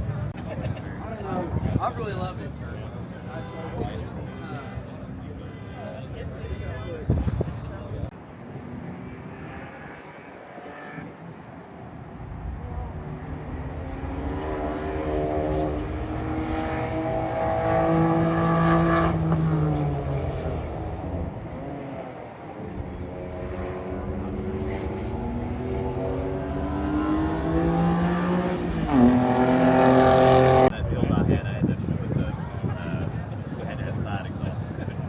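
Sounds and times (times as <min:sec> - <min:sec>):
car engine accelerating: 0:08.7 - 0:30.8.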